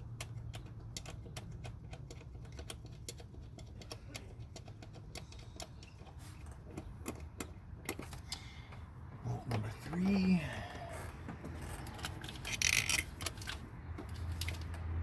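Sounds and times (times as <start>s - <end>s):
ratchet wrench clicking: 12.0s - 13.6s.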